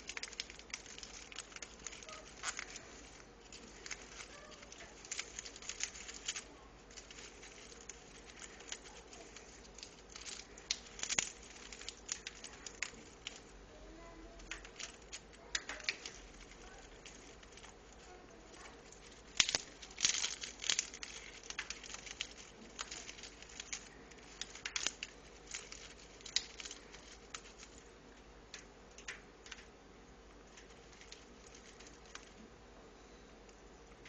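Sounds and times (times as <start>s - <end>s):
parrot beak chewing toy: 0.0s - 13.4s.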